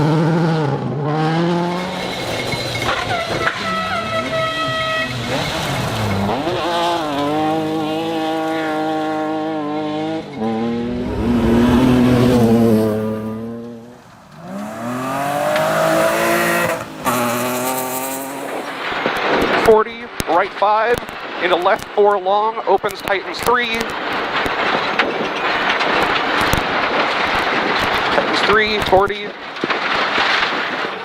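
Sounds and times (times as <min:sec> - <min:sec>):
rally car engine revving: 0:00.0 - 0:20.3.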